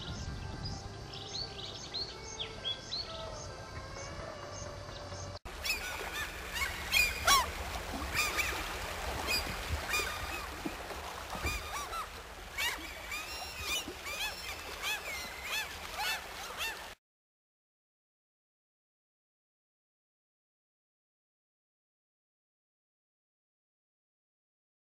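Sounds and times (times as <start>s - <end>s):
songbird chirping: 0.0s - 10.7s, 11.4s - 16.9s
waterfowl calling: 5.5s - 17.0s.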